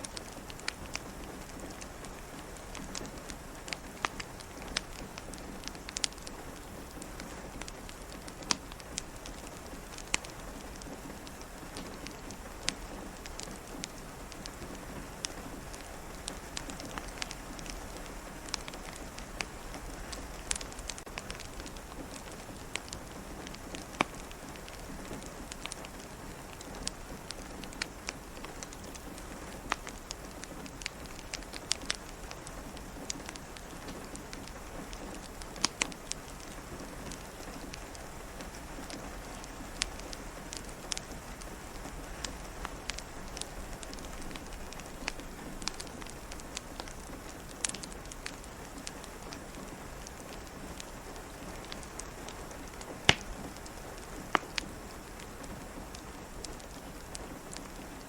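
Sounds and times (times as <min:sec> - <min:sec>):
fireplace crackling: 0:00.0 - 0:58.0
rain pattering on window: 0:00.0 - 0:58.0.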